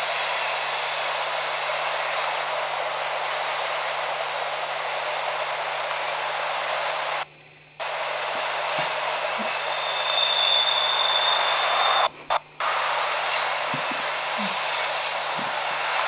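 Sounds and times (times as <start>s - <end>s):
high wheel squeal: 9.4s - 12.1s.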